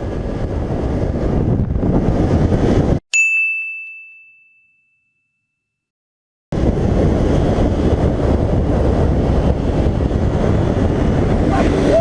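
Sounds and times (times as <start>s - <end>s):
wind and road noise: 0.0s - 3.0s, 6.5s - 12.0s
chime ringing: 3.1s - 5.8s.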